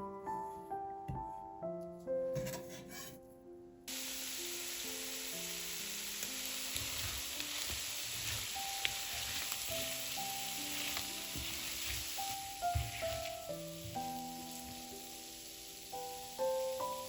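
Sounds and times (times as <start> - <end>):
soft background music: 0.0 - 17.0
food sizzling in hot oil: 3.9 - 17.0.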